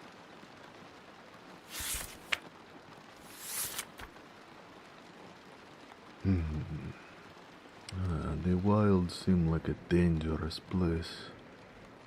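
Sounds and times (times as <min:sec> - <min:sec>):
rain pattering: 0:00.0 - 0:12.0
book page turning: 0:01.7 - 0:02.4, 0:03.2 - 0:04.1.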